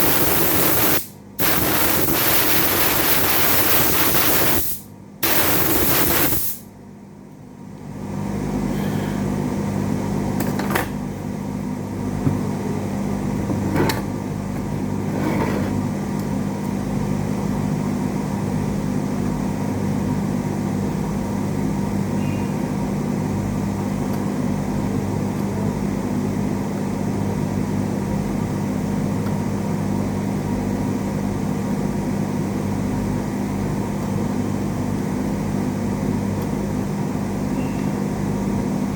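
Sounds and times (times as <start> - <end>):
short loud hiss: 0.0 - 6.6
low electrical hum: 0.0 - 38.9.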